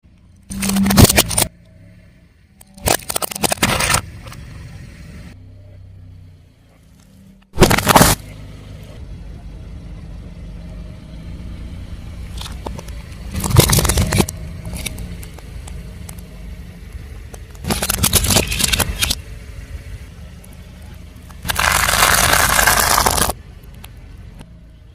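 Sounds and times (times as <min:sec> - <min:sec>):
car engine running: 0:00.0 - 0:24.9
tyre crushing objects: 0:07.6 - 0:08.2, 0:13.3 - 0:15.0, 0:21.4 - 0:23.4.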